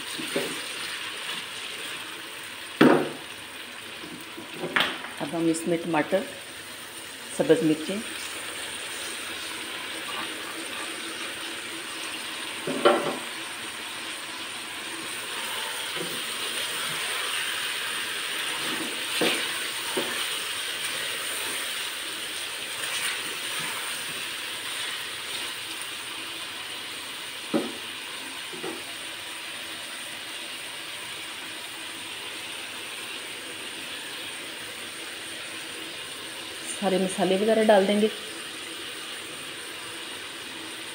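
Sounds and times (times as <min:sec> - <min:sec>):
food sizzling in hot oil: 0:00.0 - 0:40.9.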